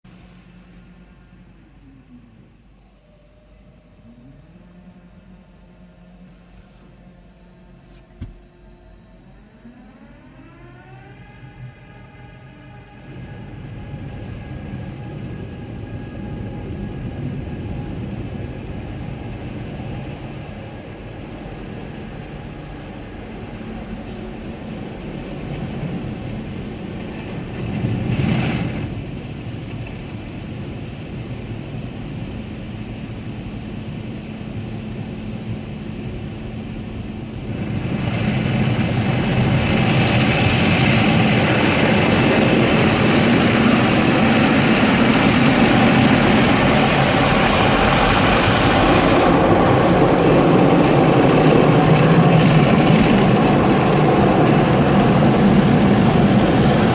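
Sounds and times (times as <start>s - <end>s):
car wash machinery rushing: 3.1s - 56.9s
steady machine hum: 35.4s - 56.9s.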